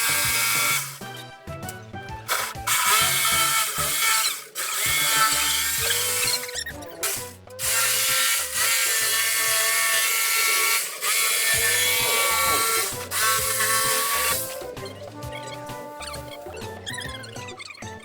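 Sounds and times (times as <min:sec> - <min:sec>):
power tool cutting into wood: 0:00.0 - 0:01.1, 0:02.3 - 0:14.8
background music: 0:00.0 - 0:18.0.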